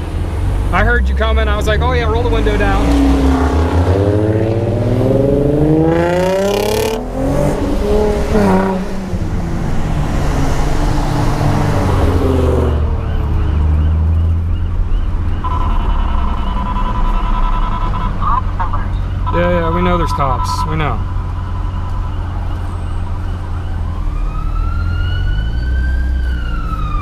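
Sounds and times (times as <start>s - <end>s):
car engine accelerating: 0.0s - 15.8s
steady high tone: 19.3s - 23.7s.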